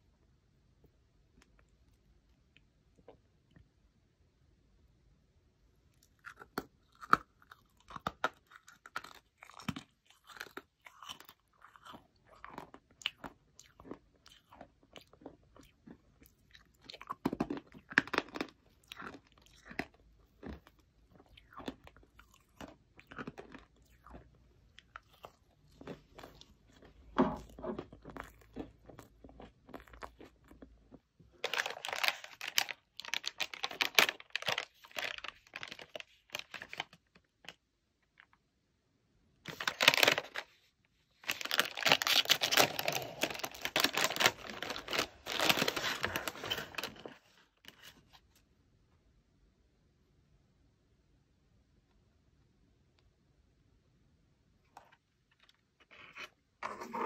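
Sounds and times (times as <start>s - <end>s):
chewing crunchy marshmallow: 5.9s - 38.4s, 41.2s - 47.2s
plastic snack bag crinkling: 6.2s - 15.4s, 16.6s - 20.8s, 31.4s - 37.6s, 39.5s - 48.2s
plastic bag tearing open: 31.4s - 36.8s, 39.5s - 40.5s, 41.2s - 47.1s.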